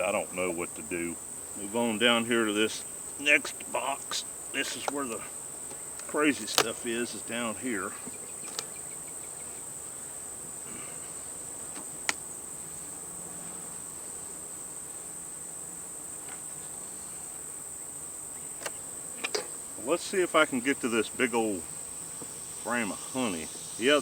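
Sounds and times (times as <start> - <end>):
faint low hum of bees: 0.0 - 24.0
high-pitched insect chorus: 0.0 - 24.0
sharp clicks: 6.0 - 6.8.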